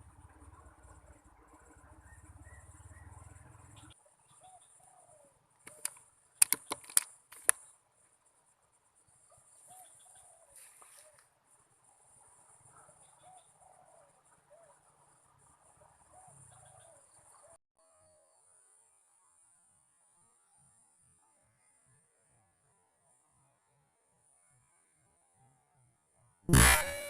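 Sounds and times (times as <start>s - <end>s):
sharp clicks: 5.6s - 7.6s
high insect drone: 26.5s - 27.0s.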